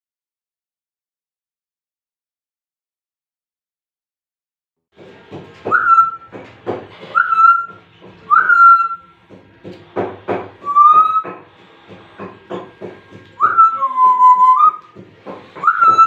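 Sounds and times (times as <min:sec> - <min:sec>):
parrot whistling: 0:05.6 - 0:06.4, 0:07.0 - 0:09.1, 0:10.6 - 0:11.4, 0:13.4 - 0:16.0.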